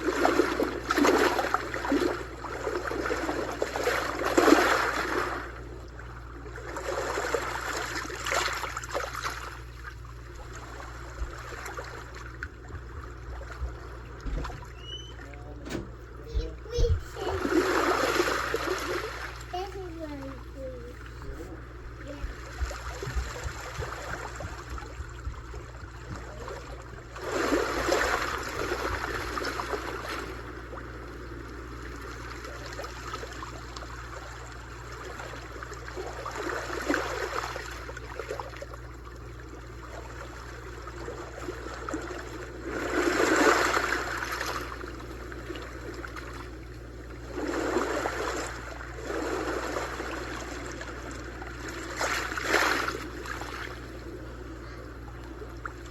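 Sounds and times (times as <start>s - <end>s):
small waves washing onto shore: 0.0s - 55.9s
steady low rumble: 5.2s - 32.9s.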